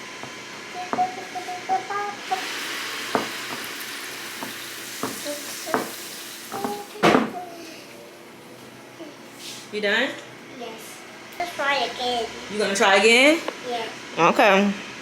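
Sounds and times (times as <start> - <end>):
chicken sizzling in frying pan: 2.2 - 7.0.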